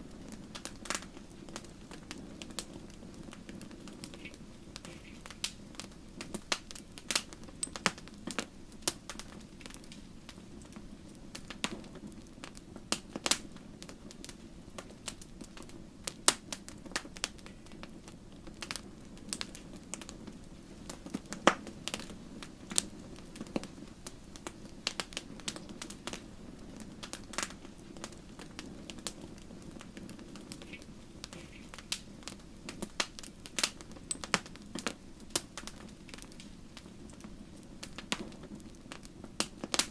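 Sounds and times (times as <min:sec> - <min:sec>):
logs crackling and popping: 0:00.0 - 0:39.9
rush of flames: 0:00.0 - 0:39.9.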